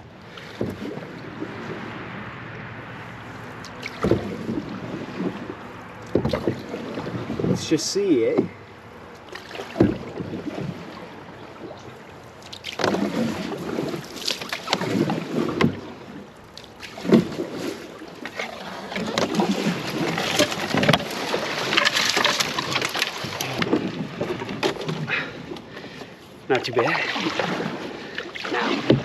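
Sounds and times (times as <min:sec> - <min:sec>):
paddle splashes and swishes: 0:00.0 - 0:29.0
knocks against canoe hull: 0:09.3 - 0:10.7.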